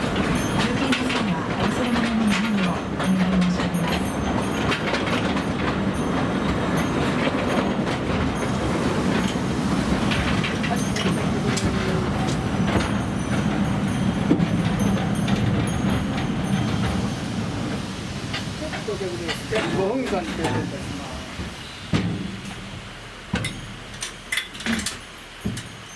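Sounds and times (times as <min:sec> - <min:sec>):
train rumble and drone: 0:00.0 - 0:25.9
wheels clicking over rail joints: 0:00.0 - 0:25.9.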